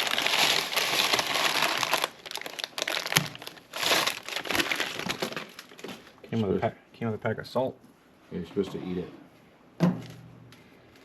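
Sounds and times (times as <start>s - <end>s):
packaging crinkling: 0.0s - 6.2s.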